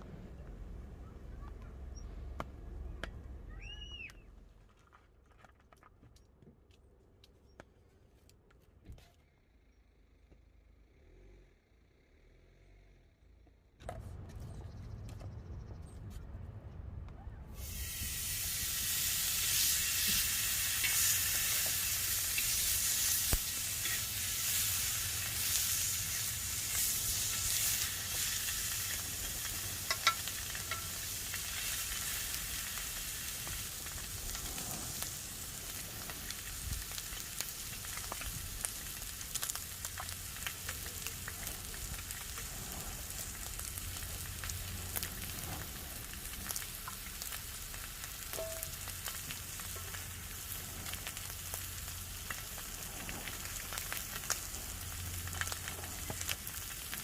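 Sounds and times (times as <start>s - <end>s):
food sizzling on a griddle: 17.6s - 57.0s.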